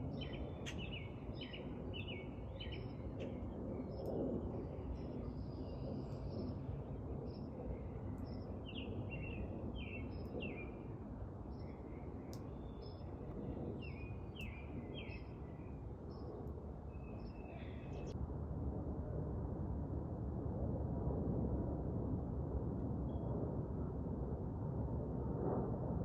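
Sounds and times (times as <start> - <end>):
small birds chirping: 13.8 - 18.1.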